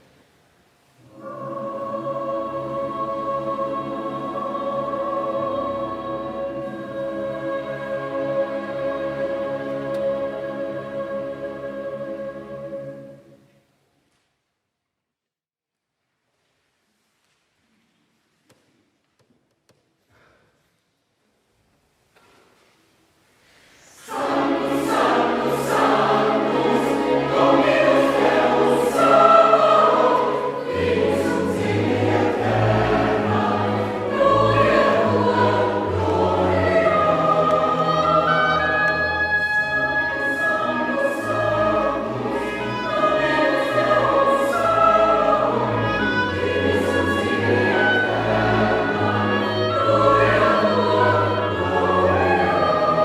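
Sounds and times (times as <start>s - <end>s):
mixed choir singing: 1.0s - 13.4s, 23.9s - 53.0s
chamber orchestra playing: 24.1s - 53.0s.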